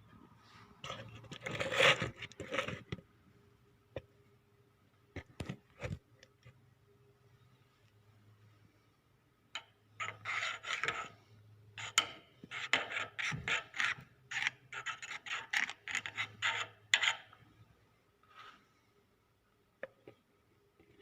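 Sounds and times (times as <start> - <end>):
rubbing and scraping strokes: 0.4 - 2.9, 10.0 - 17.3, 18.2 - 18.7.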